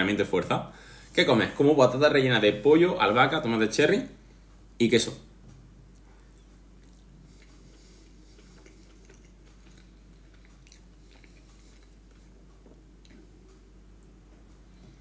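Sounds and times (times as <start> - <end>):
steady low hum: 0.0 - 15.0
person chewing soft food: 5.5 - 15.0.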